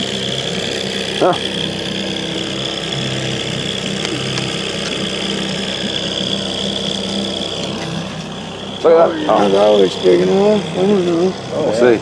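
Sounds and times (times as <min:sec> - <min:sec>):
boat motor running: 0:00.0 - 0:12.0.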